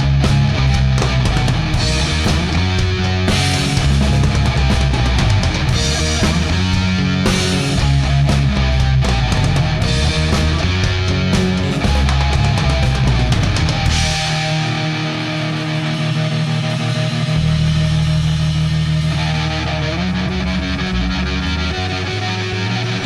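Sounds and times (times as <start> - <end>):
rock music: 0.0 - 23.0
drum hits: 0.4 - 15.1.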